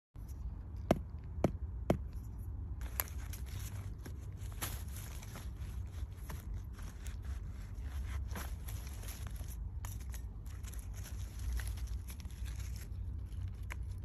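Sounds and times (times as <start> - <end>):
rustling and scraping clicks: 2.1 - 14.0.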